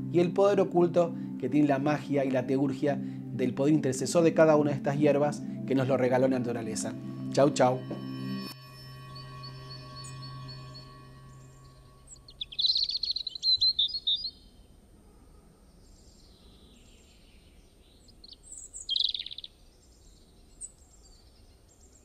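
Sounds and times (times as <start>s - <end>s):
songbird twittering: 8.4s - 14.7s, 16.3s - 22.0s.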